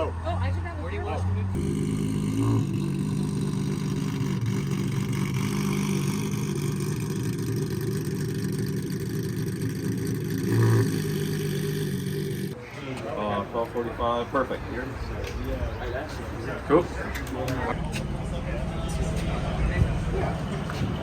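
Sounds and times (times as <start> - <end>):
car engine droning: 0.0 - 12.6, 17.7 - 21.0.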